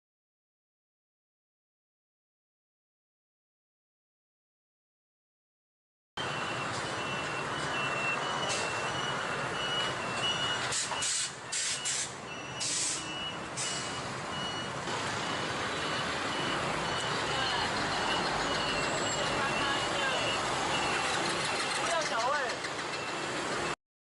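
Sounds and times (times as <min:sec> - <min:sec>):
road traffic: 0:06.2 - 0:23.8.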